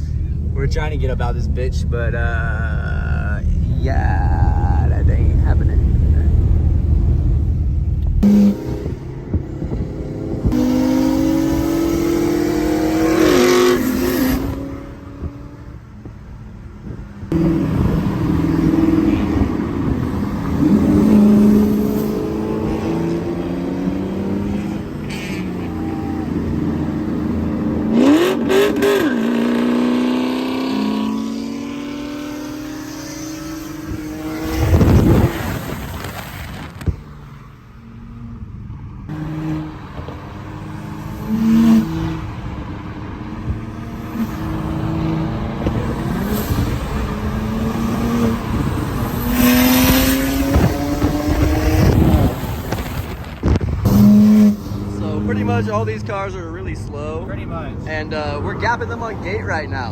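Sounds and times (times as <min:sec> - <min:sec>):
car engines revving: 0:00.0 - 0:59.9
car passing: 0:00.0 - 0:59.9.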